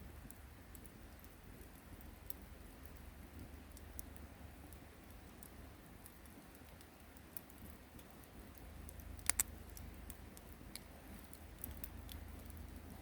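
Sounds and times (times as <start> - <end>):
campfire crackling: 0.0 - 13.0
sharp pops of fire: 0.0 - 13.0.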